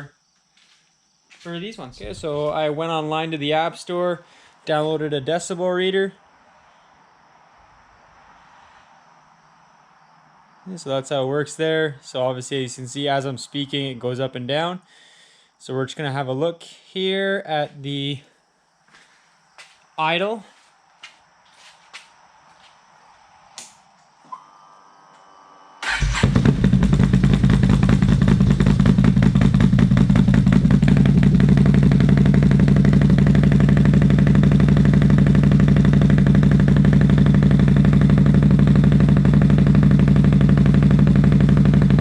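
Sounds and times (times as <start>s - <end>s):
engine idling loudly: 25.9s - 42.0s.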